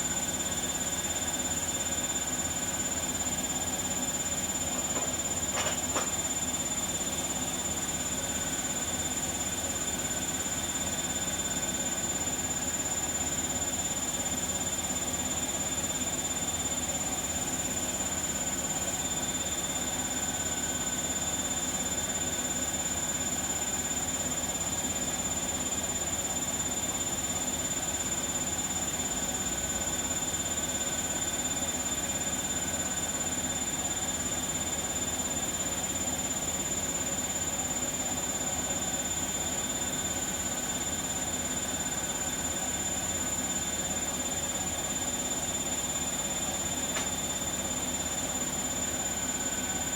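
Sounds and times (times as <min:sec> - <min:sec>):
washing machine spinning: 0:00.0 - 0:11.0, 0:32.0 - 0:49.9.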